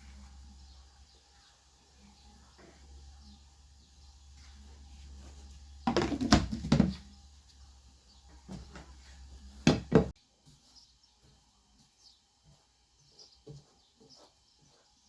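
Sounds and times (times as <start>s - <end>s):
kitchenware knocking and clattering: 5.9s - 7.1s, 9.7s - 10.1s.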